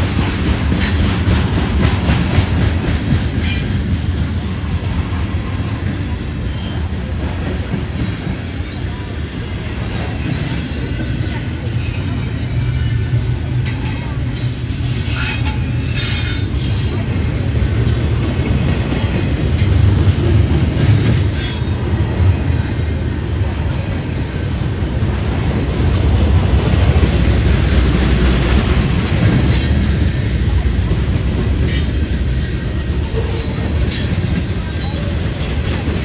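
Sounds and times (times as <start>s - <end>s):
train wheels rumbling on rail: 0.0s - 36.0s.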